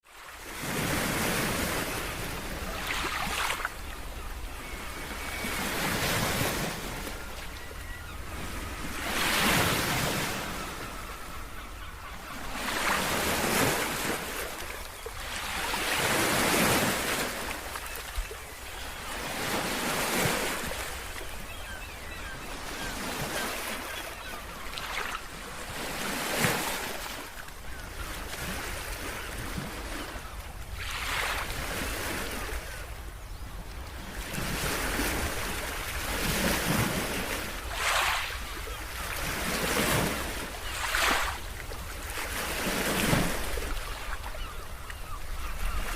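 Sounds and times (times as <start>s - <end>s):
ocean waves breaking on shore: 0.0s - 45.9s.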